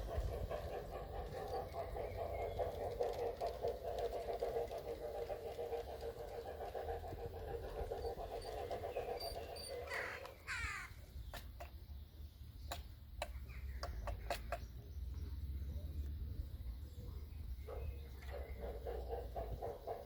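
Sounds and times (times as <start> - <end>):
harsh bird calls: 0.0 - 15.3
sharp clicks: 12.7 - 14.7.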